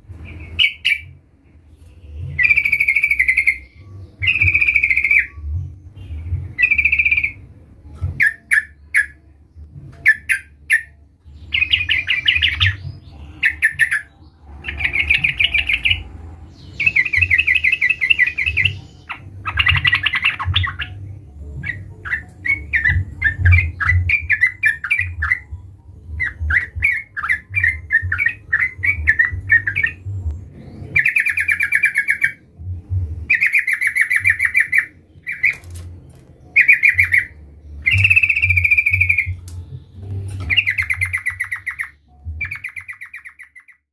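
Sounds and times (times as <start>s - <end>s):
bulbul chattering calls: 11.5s - 16.0s, 36.5s - 39.4s, 40.4s - 43.8s.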